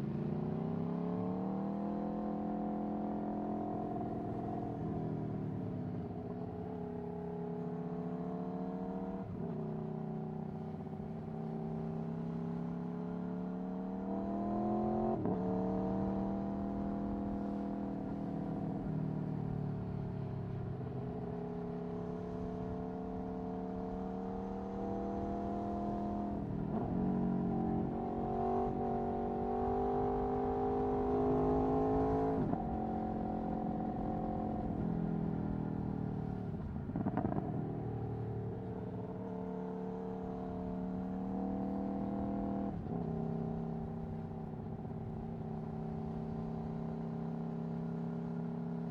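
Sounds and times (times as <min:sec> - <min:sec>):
motorcycle engine revving: 0:40.1 - 0:47.9.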